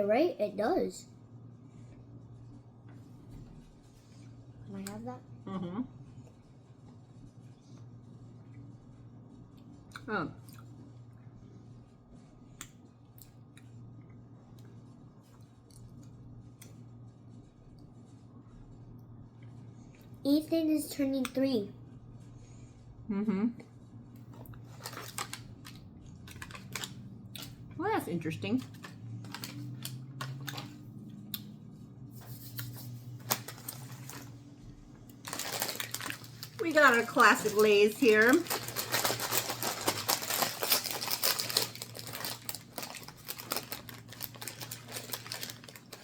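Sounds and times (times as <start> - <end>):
low steady hum: 0.0 - 46.0
small clicks of handling snacks: 24.2 - 27.6, 28.6 - 31.5, 32.4 - 34.4, 35.0 - 46.0.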